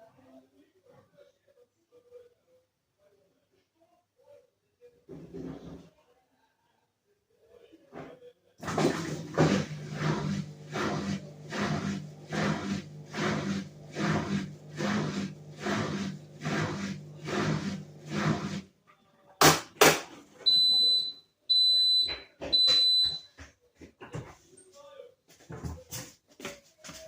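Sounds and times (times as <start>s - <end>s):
washing machine drum swishing: 8.6s - 18.7s.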